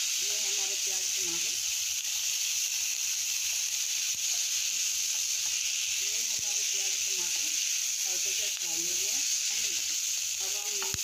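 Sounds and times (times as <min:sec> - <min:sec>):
vegetables sizzling in wok: 0:00.0 - 0:11.0
spatula tapping pan: 0:03.5 - 0:05.8, 0:09.8 - 0:11.0.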